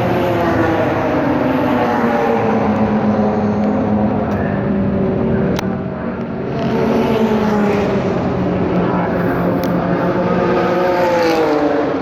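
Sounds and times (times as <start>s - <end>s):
engine drone: 0.0s - 12.0s.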